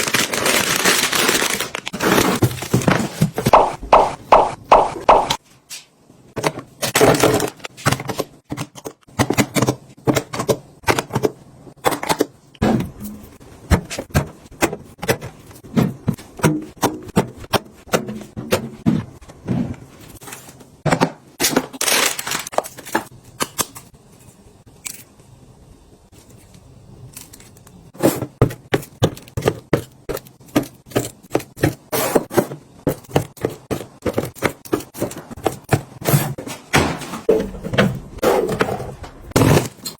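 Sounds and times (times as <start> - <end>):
wrappers crinkling: 0.0 - 2.7, 21.7 - 22.6
packages clicking and knocking: 0.0 - 5.4, 6.4 - 12.4, 13.6 - 23.6, 27.4 - 39.9.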